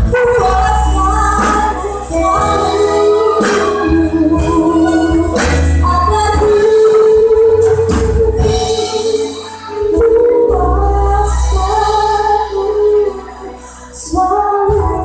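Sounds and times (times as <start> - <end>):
bass and light percussion: 0.0 - 9.0.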